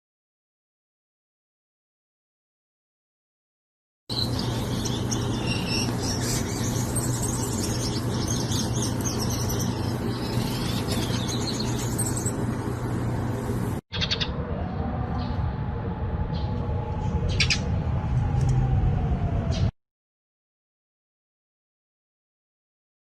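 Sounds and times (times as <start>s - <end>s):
small birds chirping: 4.1s - 14.3s, 16.3s - 17.7s
low hum and rumble: 4.1s - 19.7s.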